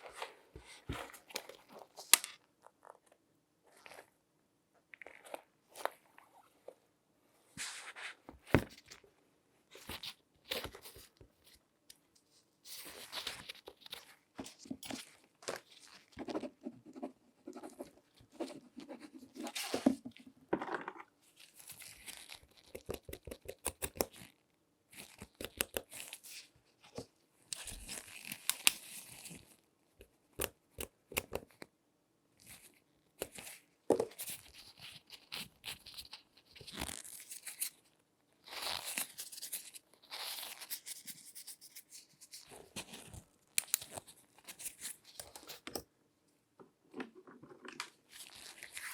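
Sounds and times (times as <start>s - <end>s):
gloved hands handling shoe: 12.8s - 24.3s.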